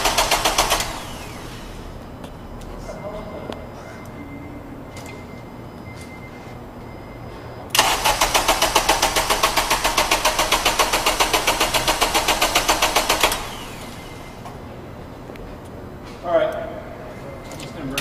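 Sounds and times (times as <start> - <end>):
car engine cranking: 0.0 - 1.8, 7.7 - 14.4.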